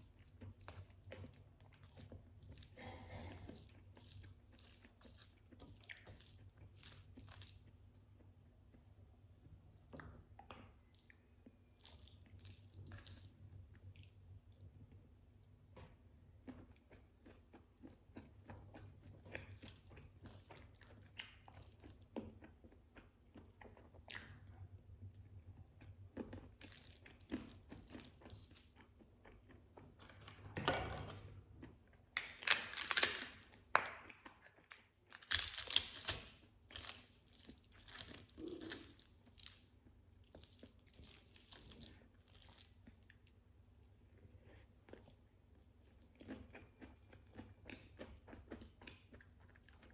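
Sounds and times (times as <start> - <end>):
wet chewing and mouth clicks: 16.3 - 30.2, 31.6 - 49.9
crunching: 32.2 - 33.9, 35.1 - 42.7.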